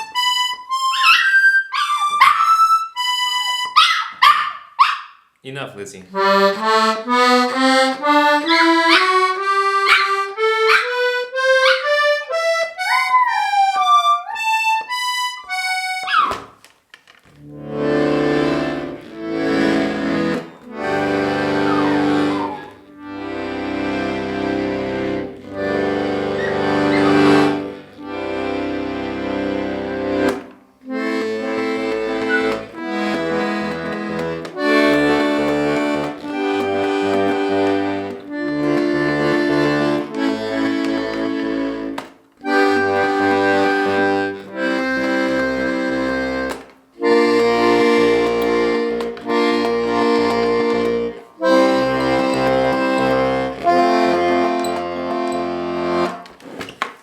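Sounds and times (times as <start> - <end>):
button accordion playing: 0.0 - 3.9, 6.1 - 16.2, 17.4 - 57.0.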